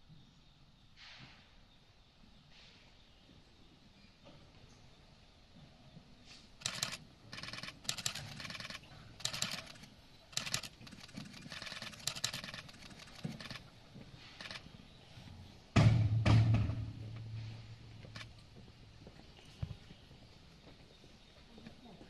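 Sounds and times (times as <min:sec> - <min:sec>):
loud thump: 0:15.8 - 0:17.6.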